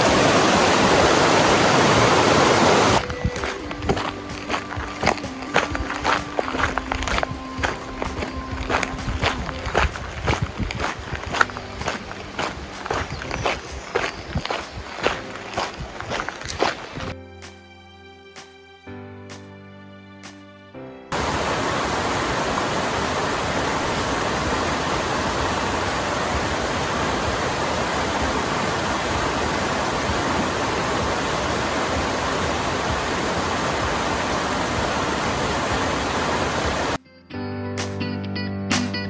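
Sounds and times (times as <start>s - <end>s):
loud rushing noise: 0.0s - 17.1s.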